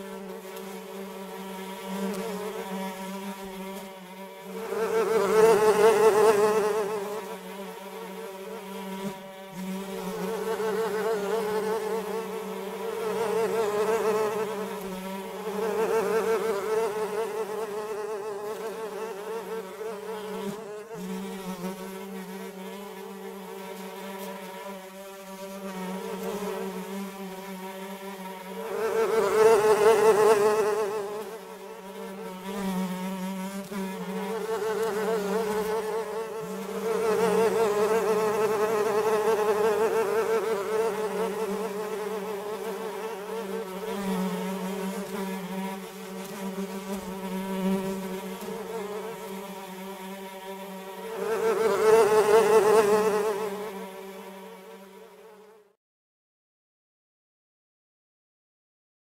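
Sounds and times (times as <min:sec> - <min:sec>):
flies buzzing: 0:00.0 - 0:55.8.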